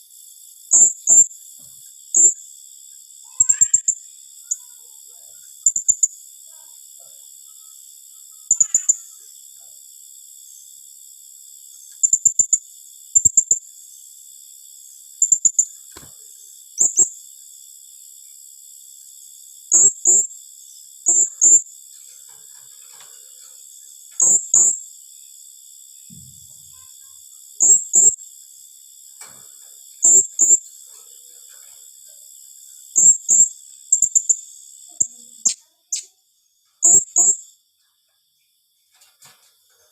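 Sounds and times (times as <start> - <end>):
parrot shrill high chirps: 3.3 - 4.6, 8.5 - 9.1.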